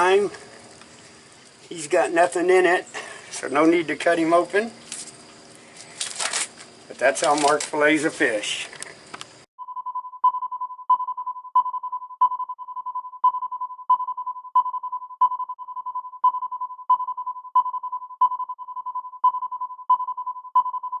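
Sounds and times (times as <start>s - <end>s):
held electronic tone: 9.6s - 21.0s.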